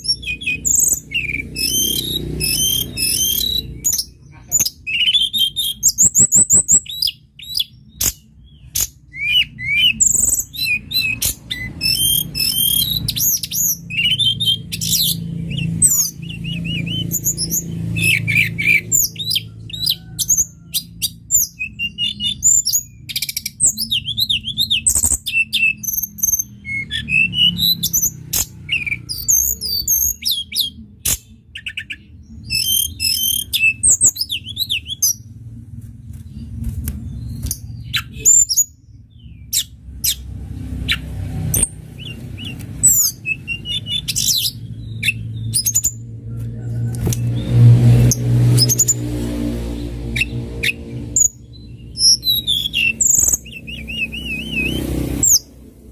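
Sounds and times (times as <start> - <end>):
songbird singing: 0.0 - 35.4, 36.0 - 55.9
low rumble: 34.3 - 54.0.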